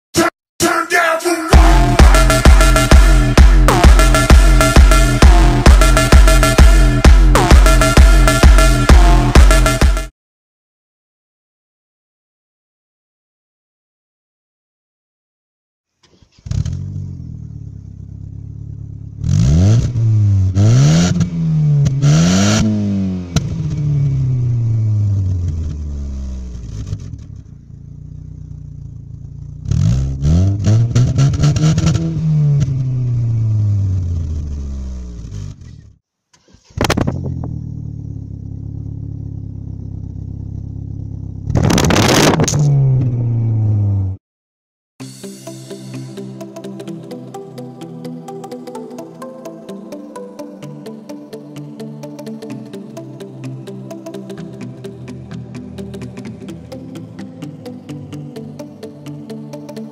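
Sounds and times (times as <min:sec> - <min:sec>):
car engine idling and revving: 0:01.6 - 0:10.1, 0:16.0 - 0:44.2, 0:52.5 - 0:59.8.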